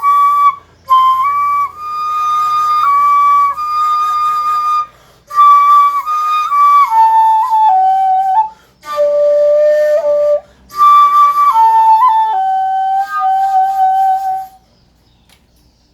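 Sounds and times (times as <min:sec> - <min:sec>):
shakuhachi flute held notes: 0:00.0 - 0:14.7.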